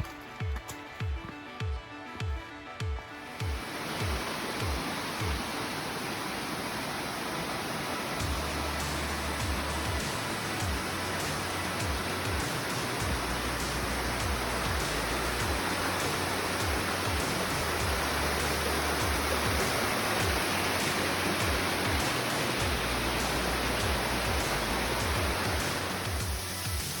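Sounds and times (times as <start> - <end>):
waterfall rushing: 3.2 - 27.0.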